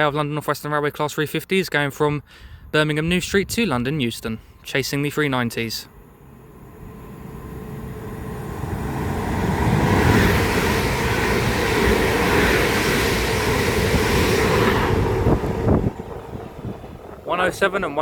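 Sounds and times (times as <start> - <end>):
electric trains passing at speed: 4.9 - 18.0
sharp clicks of train wheels: 8.1 - 17.9.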